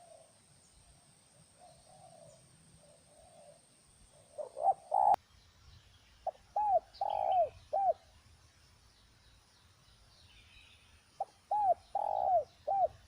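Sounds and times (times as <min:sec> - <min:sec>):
doves cooing: 0:01.6 - 0:05.2, 0:06.5 - 0:08.0, 0:11.2 - 0:13.0.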